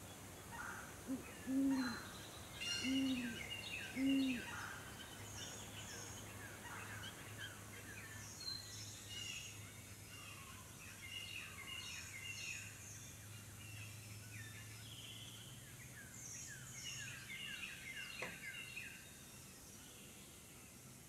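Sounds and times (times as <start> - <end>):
low steady hum: 0.0 - 10.5
songbirds chirping: 0.0 - 21.0.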